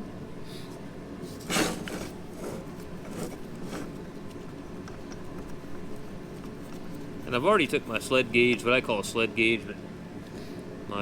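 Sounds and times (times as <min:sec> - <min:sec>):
engine parts scraping: 0:01.2 - 0:04.1.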